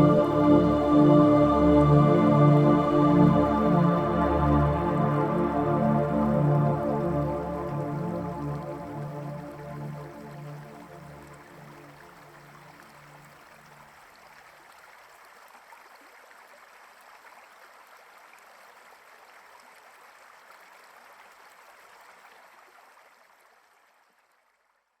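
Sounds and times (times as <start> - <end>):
music track: 0.0 - 12.8
river flowing: 0.0 - 14.8.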